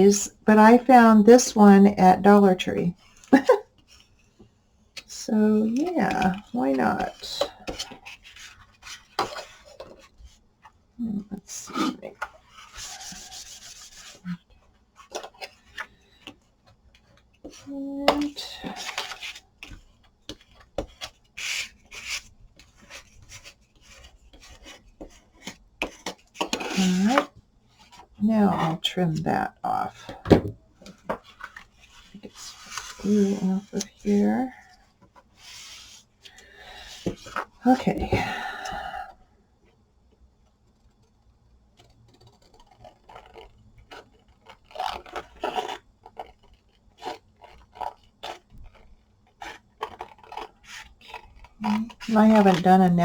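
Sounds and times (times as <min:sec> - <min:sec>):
scraping strokes on paper: 0:11.6 - 0:14.4, 0:21.0 - 0:25.6, 0:31.3 - 0:33.8, 0:35.3 - 0:36.1, 0:42.2 - 0:52.9.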